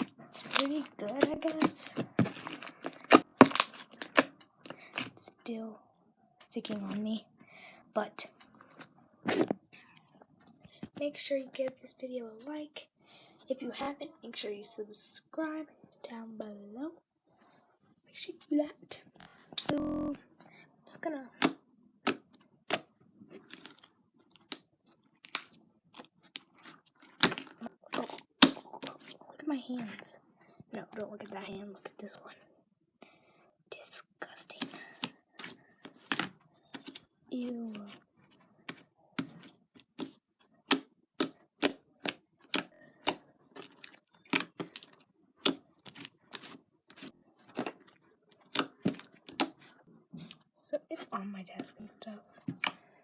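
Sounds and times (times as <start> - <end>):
slime clicking and popping: 0.0 - 4.3, 23.4 - 24.6, 25.2 - 29.1, 40.7 - 47.7, 48.3 - 49.5
slime squeezed wet clicks: 0.0 - 4.3, 25.2 - 25.5.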